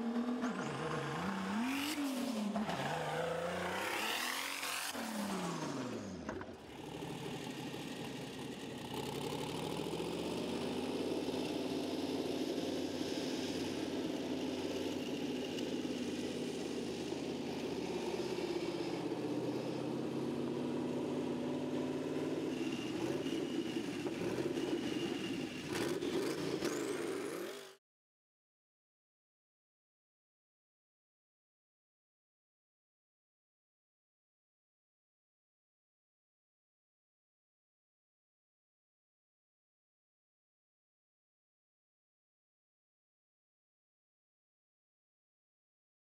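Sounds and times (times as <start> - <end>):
tractor engine revving: 0.0 - 27.8.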